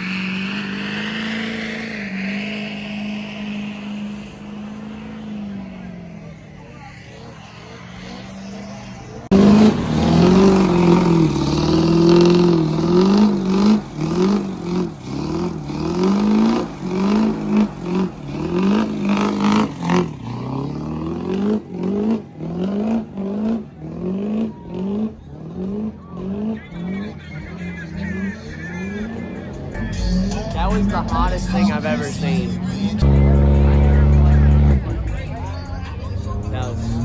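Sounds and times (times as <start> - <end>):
diesel truck engine revving: 0.0 - 37.0.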